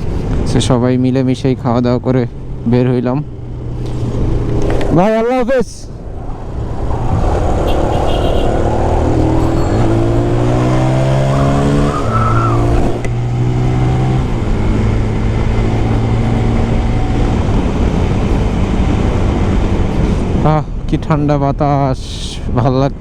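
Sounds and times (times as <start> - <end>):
motorcycle engine accelerating: 2.4 - 5.2, 5.9 - 20.0
wind rushing past microphone: 4.0 - 20.4.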